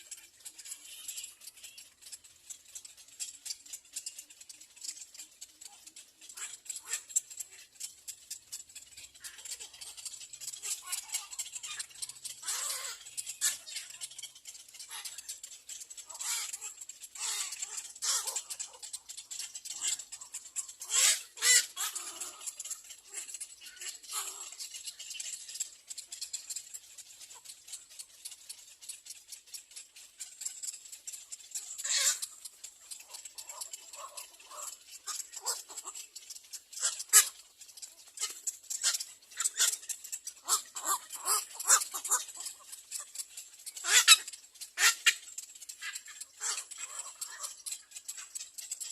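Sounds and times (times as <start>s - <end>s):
bird nestlings screaming: 10.6s - 14.1s, 16.1s - 18.8s, 19.7s - 25.3s, 31.7s - 32.4s, 33.0s - 36.0s, 36.8s - 37.4s, 38.2s - 42.7s, 43.8s - 47.6s.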